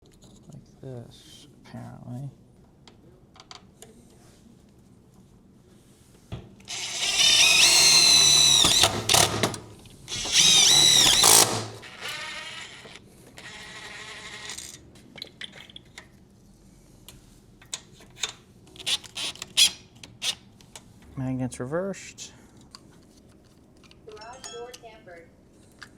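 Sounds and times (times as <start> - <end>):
power drill whining: 6.7 - 14.1.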